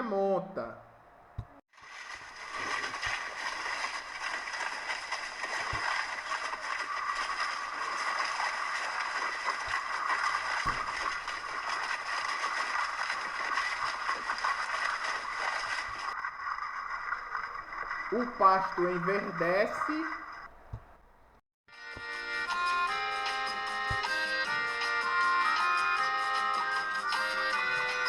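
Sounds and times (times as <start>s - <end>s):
steady rain falling: 1.8s - 20.0s
faint low thuds: 10.6s - 11.9s.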